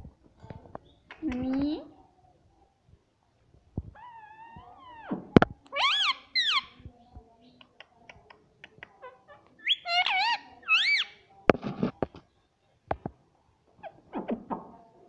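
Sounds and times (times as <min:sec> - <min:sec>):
parrot squawking: 0:05.7 - 0:06.7, 0:09.6 - 0:11.2.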